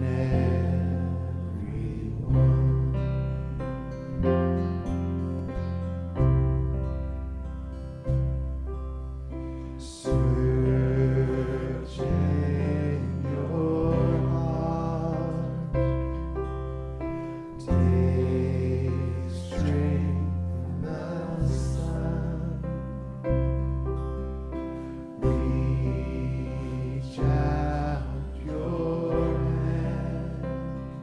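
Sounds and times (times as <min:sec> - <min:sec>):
voices singing a slow chant: 0:00.0 - 0:02.7, 0:09.8 - 0:15.8, 0:17.6 - 0:22.9, 0:25.2 - 0:31.0
deep bass: 0:00.0 - 0:31.0
live band sustained chords: 0:00.0 - 0:31.0.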